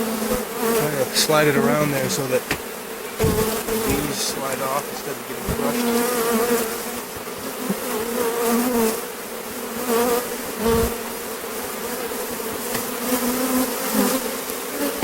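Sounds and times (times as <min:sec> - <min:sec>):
honeybees buzzing loudly: 0:00.0 - 0:15.0
low thump: 0:02.5 - 0:04.1.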